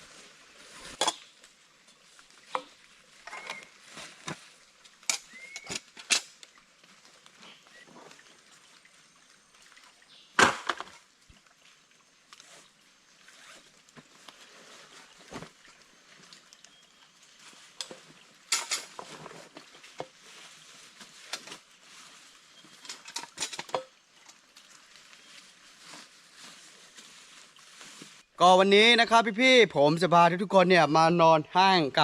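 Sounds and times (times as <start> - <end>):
dry leaves and twigs crackling underfoot: 13.4 - 28.3.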